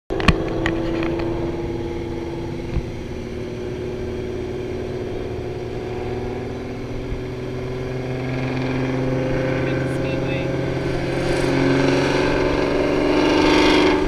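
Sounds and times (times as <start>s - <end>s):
car engine cruising: 0.1s - 14.0s.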